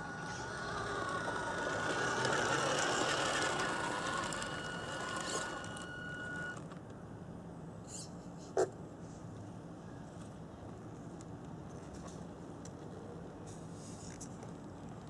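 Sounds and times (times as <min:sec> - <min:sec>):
small electric motor whining: 0:00.0 - 0:06.8.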